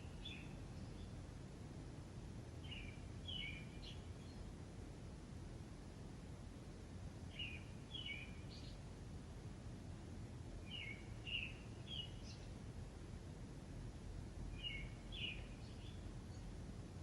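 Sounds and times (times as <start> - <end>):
small songbird chirping: 0.0 - 1.4, 2.5 - 4.6, 7.2 - 9.0, 10.5 - 12.8, 14.3 - 17.0.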